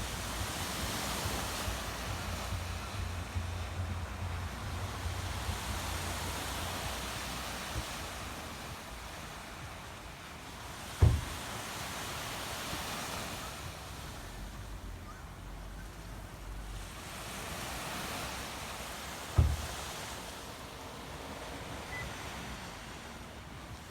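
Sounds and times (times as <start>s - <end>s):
wind rumbling on microphone: 0.0s - 10.1s
sea waves washing onto beach: 0.0s - 23.9s
sharp low thump: 11.0s - 11.4s, 19.4s - 19.7s.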